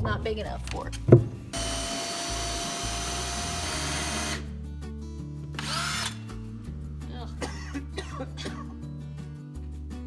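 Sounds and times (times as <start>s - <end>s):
power drill boring through wood: 1.5s - 4.5s, 5.6s - 6.4s.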